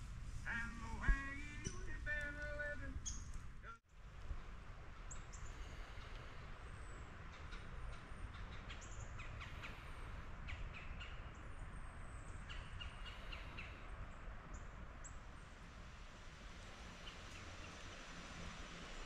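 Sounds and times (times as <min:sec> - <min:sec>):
faint low background noise: 0:00.0 - 0:19.0
birds calling: 0:00.5 - 0:03.5.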